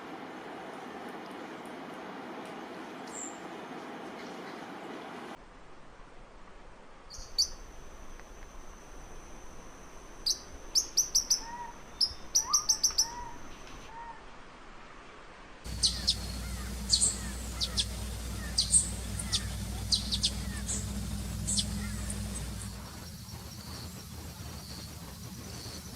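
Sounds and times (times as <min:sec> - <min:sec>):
bird whistling: 0:10.2 - 0:13.5, 0:15.7 - 0:25.9
low sliding bird notes: 0:15.7 - 0:25.9
low steady rumble: 0:15.7 - 0:25.9
quick high bird chirps: 0:15.7 - 0:25.9.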